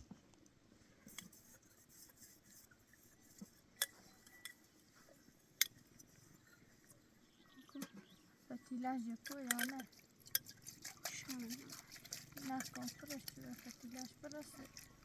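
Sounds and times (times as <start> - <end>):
light sharp clinks: 3.8 - 4.7.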